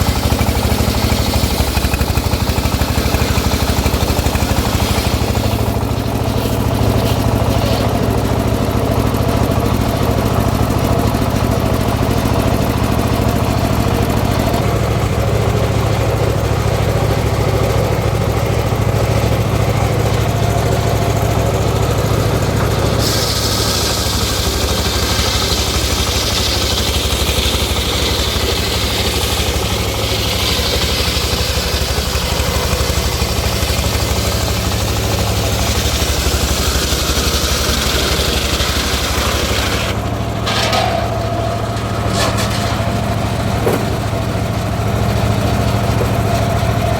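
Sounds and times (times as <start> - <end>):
saw rig engine hum: 0.0 - 46.9
high hiss: 23.0 - 31.7.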